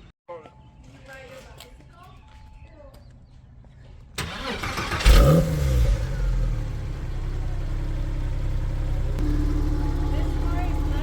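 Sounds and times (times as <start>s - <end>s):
sports car engine starting: 4.2s - 11.0s.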